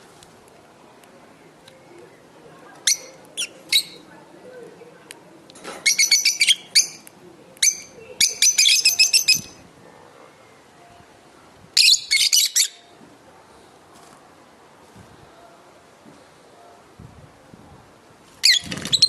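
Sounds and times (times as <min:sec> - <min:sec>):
lovebirds chirping shrilly: 0:02.9 - 0:04.0, 0:05.8 - 0:07.0, 0:07.6 - 0:09.6, 0:11.8 - 0:12.9, 0:18.4 - 0:19.0.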